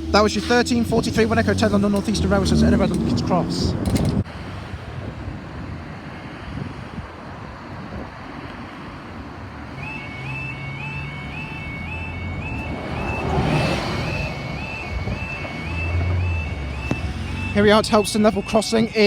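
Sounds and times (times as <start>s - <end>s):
level crossing alarm warble: 0.0s - 3.6s, 9.6s - 19.0s
road traffic: 0.0s - 19.0s.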